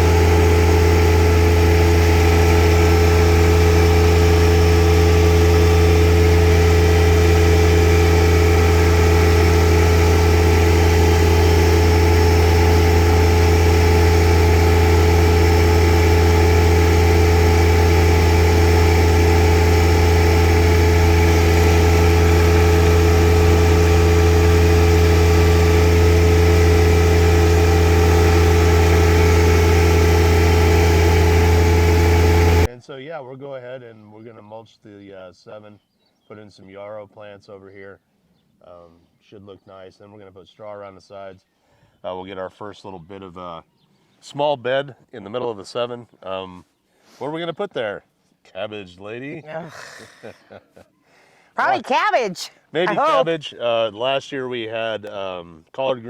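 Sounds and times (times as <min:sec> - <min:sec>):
engine running steadily: 0:00.0 - 0:32.7, 0:52.8 - 0:53.4.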